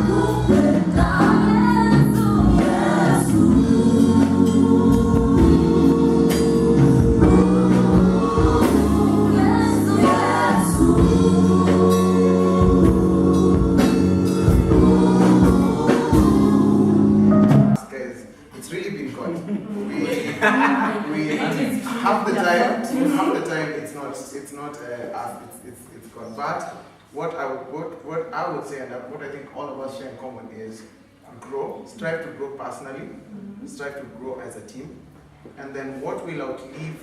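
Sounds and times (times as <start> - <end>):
choir singing: 0.0 - 17.8
gospel band playing: 0.0 - 23.9
drum beat: 0.1 - 16.8.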